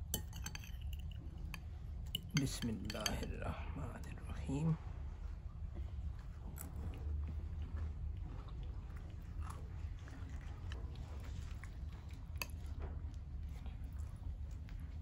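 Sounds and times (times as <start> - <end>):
low steady hum: 0.0 - 15.0
person chewing crunchy food: 6.2 - 15.0.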